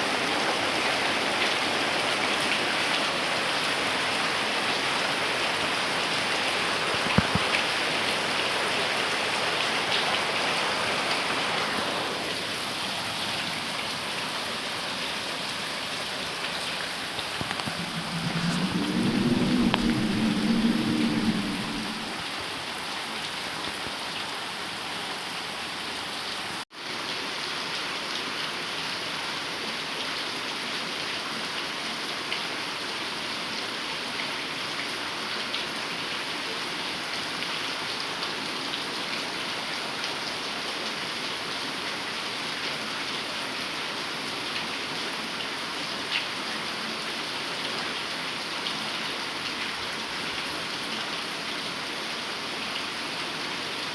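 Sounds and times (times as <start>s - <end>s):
heavy rain falling: 0.0s - 26.6s
low rumble: 17.2s - 22.3s.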